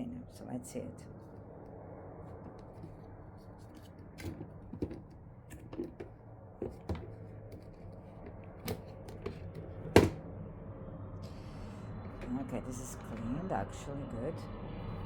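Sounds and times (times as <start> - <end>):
vacuum cleaner clicks and knocks: 3.7 - 10.2.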